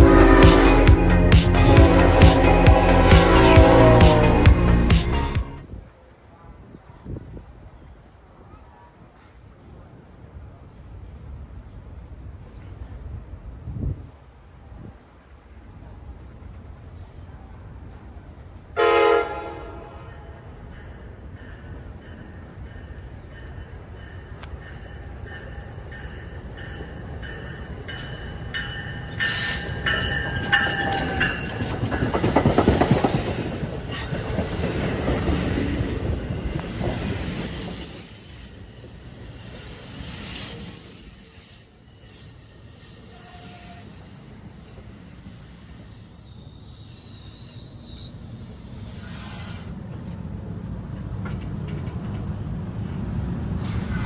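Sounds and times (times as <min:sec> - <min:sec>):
train wheels squealing on rails: 0:20.1 - 0:50.5, 0:53.6 - 0:54.0.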